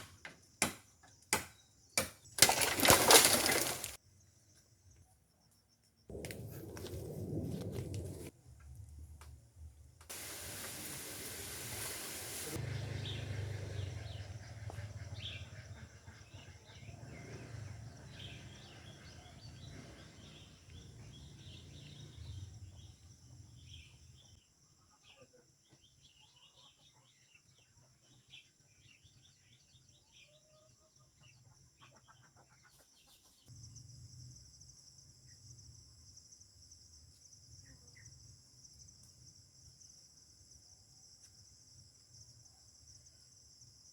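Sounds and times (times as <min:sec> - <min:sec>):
wind on microphone: 0:06.1 - 0:08.3.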